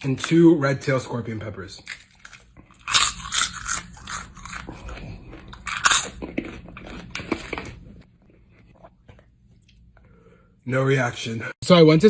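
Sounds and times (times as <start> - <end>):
crunchy chewing of chili peppers: 1.8 - 9.3.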